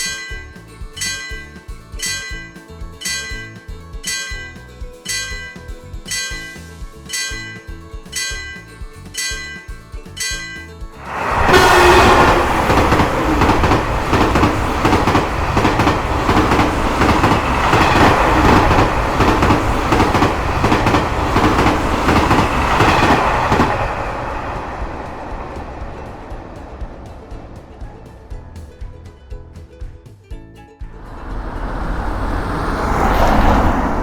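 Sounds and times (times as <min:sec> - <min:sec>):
level crossing bell ringing: 0:00.0 - 0:23.2
train wheels clattering: 0:00.0 - 0:29.3.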